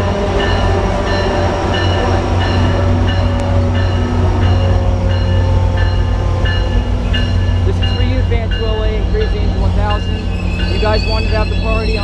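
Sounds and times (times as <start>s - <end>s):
diesel locomotive rumble: 0.0s - 12.0s
train bell ringing: 0.0s - 12.0s.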